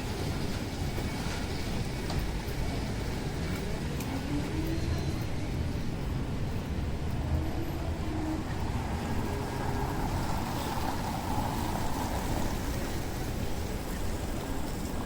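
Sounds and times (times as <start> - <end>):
traffic rumble: 0.0 - 15.0
rain hiss: 8.7 - 15.0.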